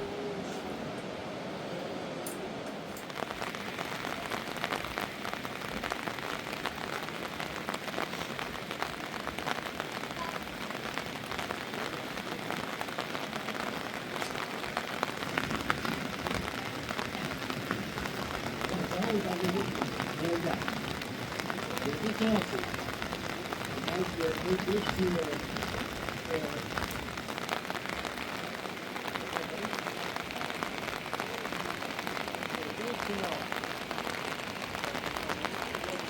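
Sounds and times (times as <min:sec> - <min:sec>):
heavy rain falling: 0:00.0 - 0:36.0.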